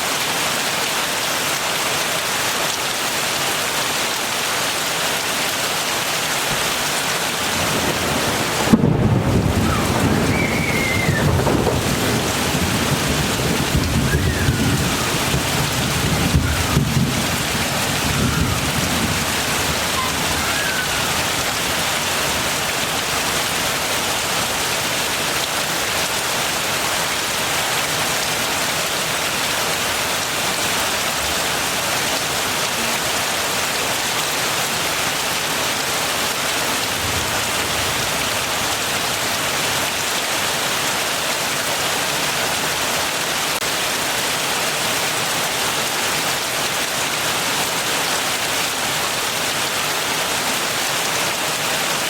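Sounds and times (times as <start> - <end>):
heavy rain hissing: 0.0 - 52.0
low thunder rumble: 7.6 - 21.7.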